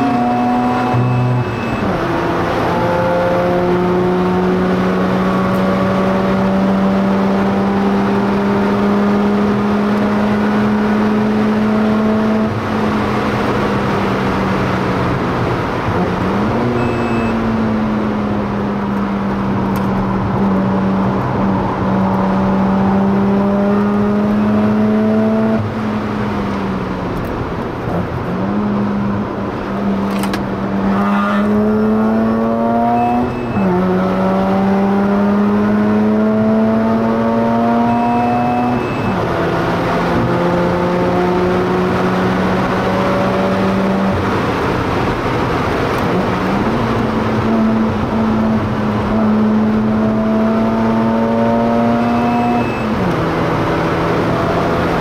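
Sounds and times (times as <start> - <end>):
road and wind noise: 0.0 - 55.0
rotary engine revving: 30.1 - 55.0.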